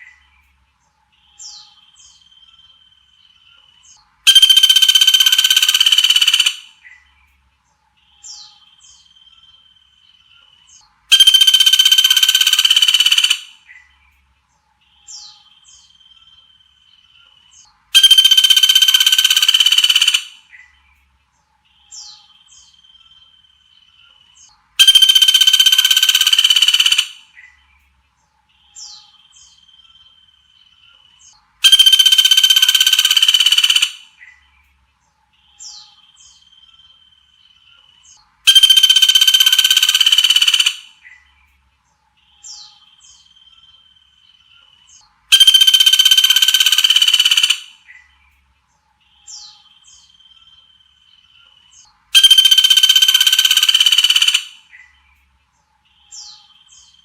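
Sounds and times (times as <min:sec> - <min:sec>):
buzzy bird call: 0:04.2 - 0:07.0, 0:11.1 - 0:13.8, 0:17.9 - 0:20.7, 0:24.8 - 0:27.6, 0:31.2 - 0:34.4, 0:38.1 - 0:41.2, 0:44.9 - 0:48.1, 0:51.8 - 0:54.9.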